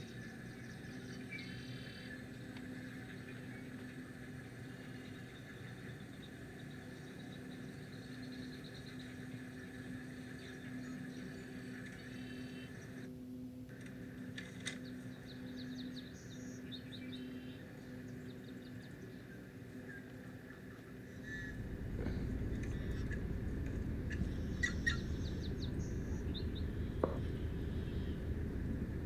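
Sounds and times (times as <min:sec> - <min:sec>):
steady low hum: 0:21.3 - 0:29.0
wetland birds chirping: 0:21.4 - 0:29.0.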